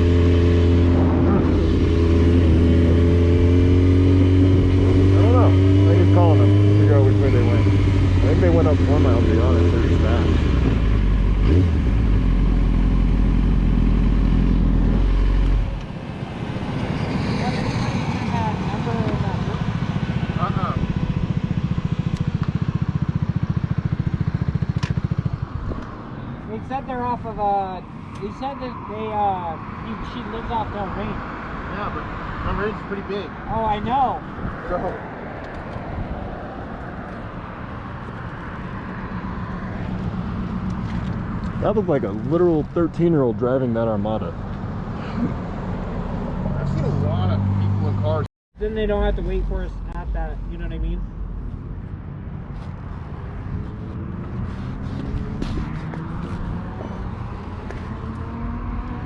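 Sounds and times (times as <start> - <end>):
motorcycle engine running: 0.0 - 15.8, 17.2 - 26.1, 48.0 - 59.0
wind and road noise: 0.0 - 59.0.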